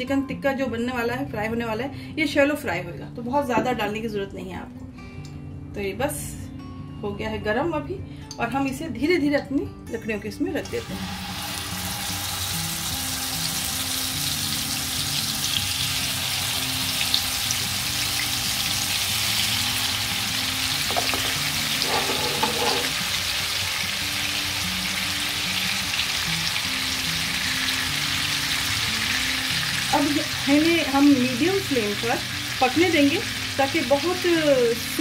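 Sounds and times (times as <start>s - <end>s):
chicken sizzling in hot oil: 10.7s - 35.0s.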